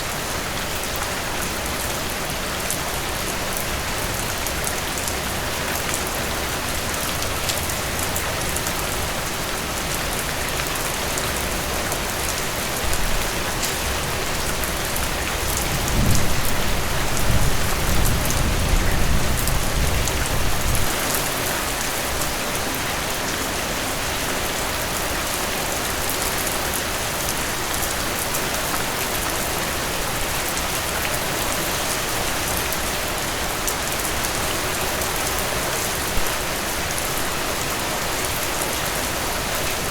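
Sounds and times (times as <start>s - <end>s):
heavy rain pouring: 0.0s - 39.9s
thunder rumbling: 15.6s - 21.0s.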